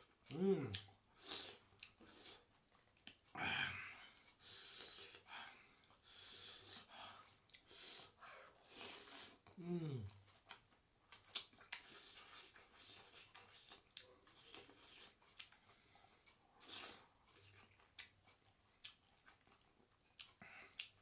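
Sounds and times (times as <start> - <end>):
chewing: 0.2 - 3.3, 8.6 - 21.0.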